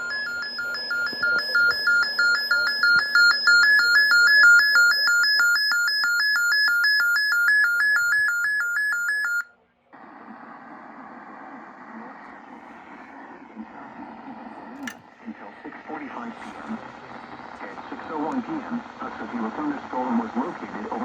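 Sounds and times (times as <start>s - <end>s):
radio hiss: 0.0s - 5.3s, 10.0s - 21.0s
two-tone electronic alarm: 0.0s - 9.5s.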